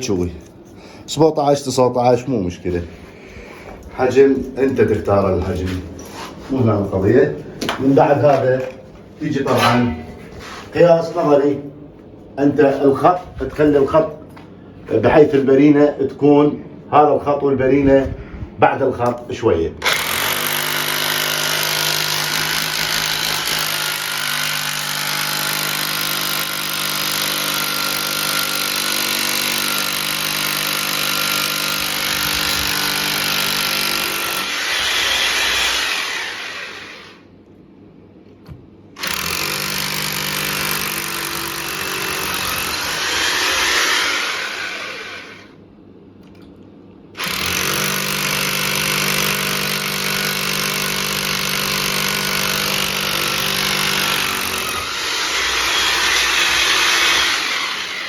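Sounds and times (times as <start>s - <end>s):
electric drill boring holes: 19.8s - 37.3s, 39.0s - 45.6s, 47.2s - 58.0s.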